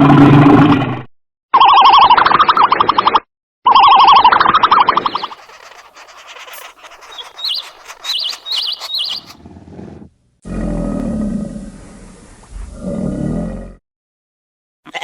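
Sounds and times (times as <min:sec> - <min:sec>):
high wavering chirping call: 0:05.0 - 0:09.4
animal roaring growl: 0:09.4 - 0:13.8.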